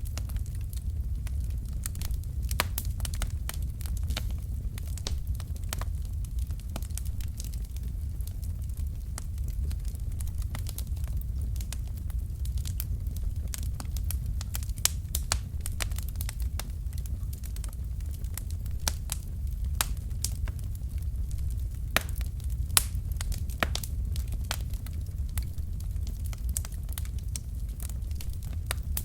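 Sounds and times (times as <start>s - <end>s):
burning logs popping and crackling: 0.0s - 29.0s
low rumble of flames: 0.0s - 29.0s.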